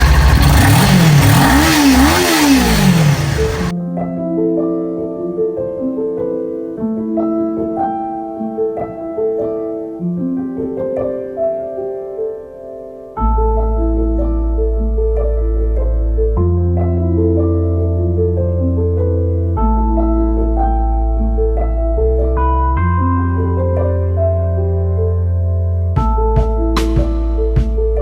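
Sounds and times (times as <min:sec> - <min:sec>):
motorcycle engine revving: 0:00.0 - 0:03.7
soft mallet and keyboard music: 0:03.7 - 0:28.0.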